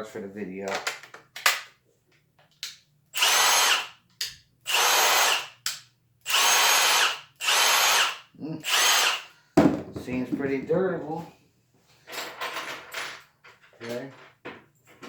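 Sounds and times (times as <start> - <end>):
impact driver motor whine: 3.2 - 3.9, 6.3 - 9.3.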